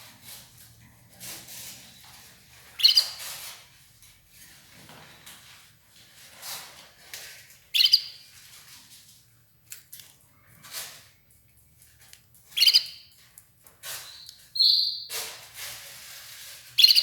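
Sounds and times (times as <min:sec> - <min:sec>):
canary chirping: 0:01.9 - 0:03.5, 0:07.7 - 0:08.4, 0:12.5 - 0:13.2, 0:13.9 - 0:15.2, 0:16.8 - 0:17.0.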